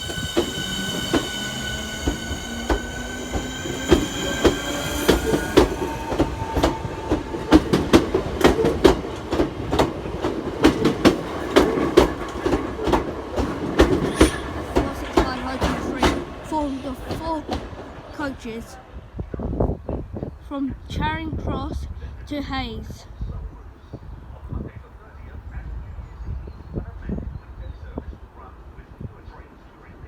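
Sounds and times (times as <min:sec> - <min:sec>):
wheels clacking over rail joints: 0:00.0 - 0:18.4
electric train whine: 0:00.0 - 0:18.7.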